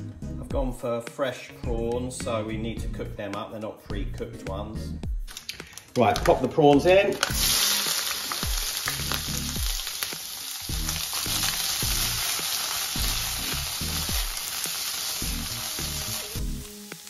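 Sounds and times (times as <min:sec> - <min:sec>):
prawns sizzling in hot oil: 0:07.1 - 0:17.0.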